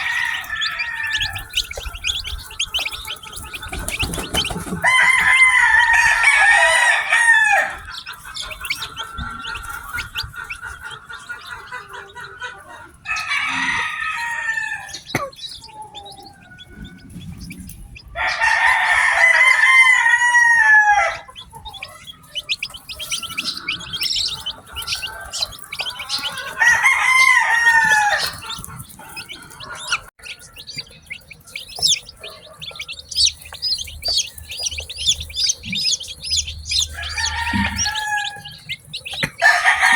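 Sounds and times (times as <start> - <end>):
rooster crowing: 0.0 - 10.0, 13.0 - 17.0, 18.2 - 21.3, 23.0 - 30.9, 33.2 - 39.9
chicks peeping: 0.0 - 39.9.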